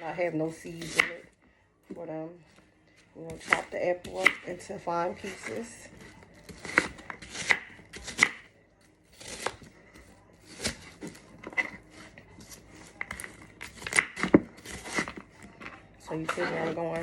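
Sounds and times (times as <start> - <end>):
knife chopping on cutting board: 0.8 - 1.2, 3.3 - 8.5, 9.1 - 15.2.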